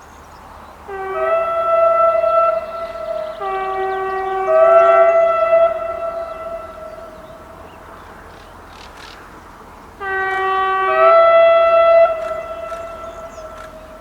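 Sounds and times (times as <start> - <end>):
locomotive two-tone horn blasts: 0.8 - 8.0, 10.0 - 14.0.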